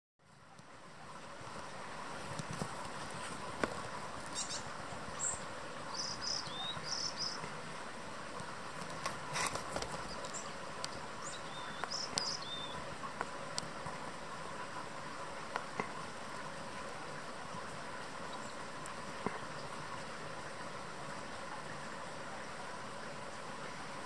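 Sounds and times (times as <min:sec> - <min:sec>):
small birds calling: 0:02.8 - 0:07.6, 0:09.2 - 0:13.0.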